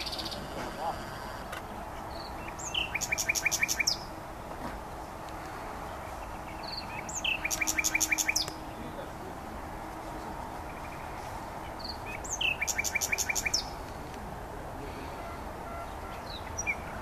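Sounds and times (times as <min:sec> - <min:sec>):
nightingale singing: 0:00.0 - 0:00.6, 0:01.9 - 0:04.2, 0:06.2 - 0:08.8, 0:10.7 - 0:13.9, 0:15.8 - 0:17.0.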